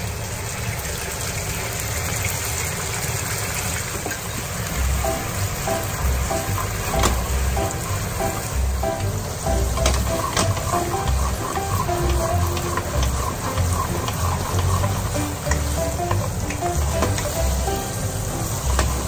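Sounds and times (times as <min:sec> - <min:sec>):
bacon sizzling in frying pan: 0:03.7 - 0:19.0
background music with steady beat: 0:04.8 - 0:19.0
wooden spatula stirring: 0:05.0 - 0:19.0.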